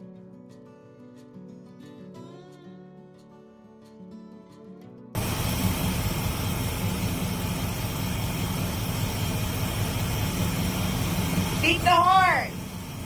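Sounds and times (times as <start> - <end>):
quiet guitar music: 0.0 - 5.2
car engine running steadily: 5.2 - 13.0.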